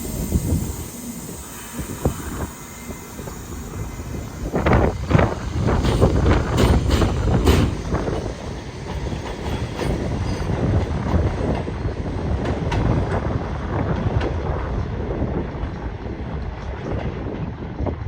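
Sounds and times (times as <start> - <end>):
train rumble: 0.0 - 18.0
train wheels clacking over rail joints: 3.2 - 14.6.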